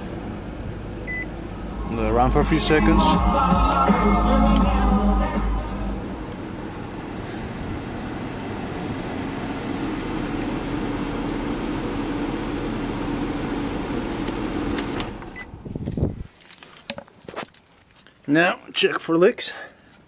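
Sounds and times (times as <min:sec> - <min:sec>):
car engine idling: 0:00.0 - 0:15.4.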